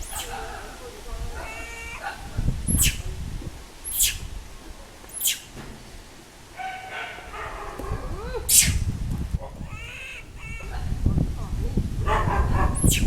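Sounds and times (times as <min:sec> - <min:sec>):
baby monkey crying: 0:00.0 - 0:00.5, 0:01.3 - 0:03.0, 0:08.4 - 0:08.8, 0:09.6 - 0:11.0, 0:12.6 - 0:13.0.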